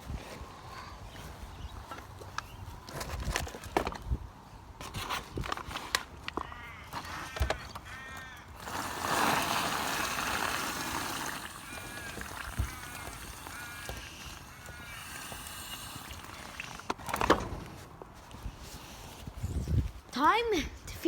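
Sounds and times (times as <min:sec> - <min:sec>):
outdoor noise rush: 0:00.0 - 0:21.0
birds calling: 0:06.2 - 0:17.8.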